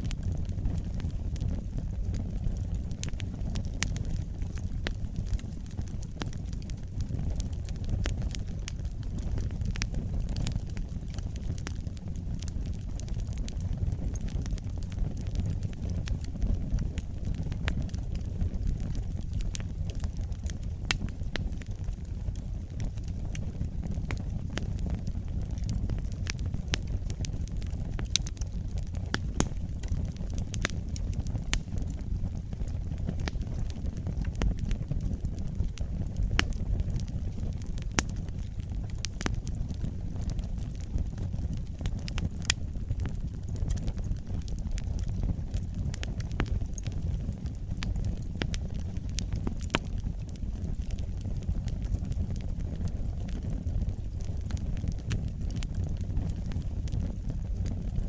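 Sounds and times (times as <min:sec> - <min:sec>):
fire crackling and popping: 0:00.0 - 0:58.0
low rumble of flames: 0:00.0 - 0:58.0.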